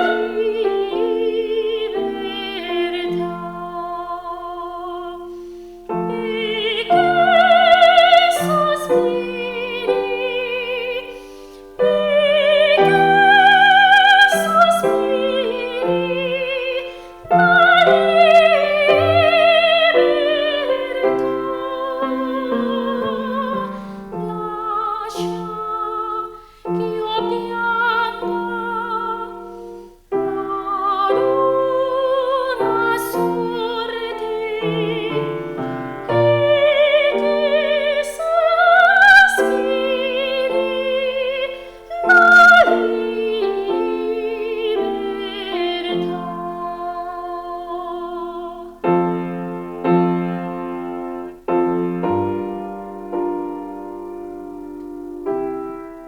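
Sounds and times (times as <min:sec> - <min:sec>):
operatic voice singing: 0:00.0 - 0:05.3, 0:11.8 - 0:29.4, 0:30.4 - 0:48.8
piano accompaniment: 0:00.0 - 0:56.0.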